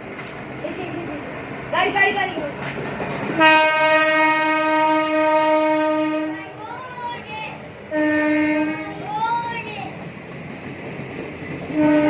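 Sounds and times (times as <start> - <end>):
train horn blasts: 3.4 - 6.5, 7.9 - 9.0, 11.7 - 12.0
child calling out: 6.3 - 7.6, 8.8 - 10.0.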